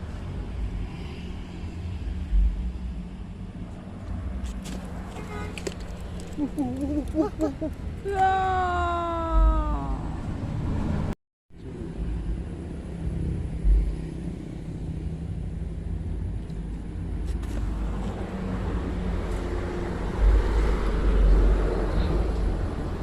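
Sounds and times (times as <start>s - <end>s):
traffic rumbling on bridge: 0.0s - 23.0s
low thump: 13.6s - 14.0s.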